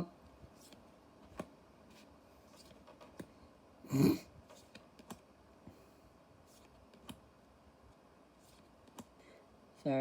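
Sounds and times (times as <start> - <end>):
cards clicking and tapping: 0.6 - 3.4, 4.5 - 5.3, 6.5 - 7.2, 8.4 - 9.2.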